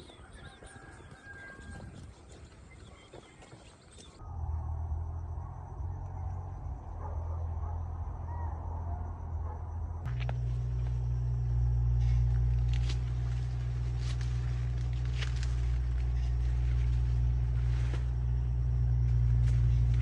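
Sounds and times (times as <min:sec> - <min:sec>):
engine humming: 0:04.1 - 0:20.0.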